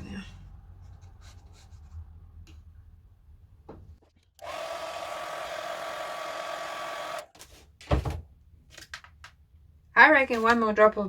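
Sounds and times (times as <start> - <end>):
hair dryer whining: 4.4 - 7.3.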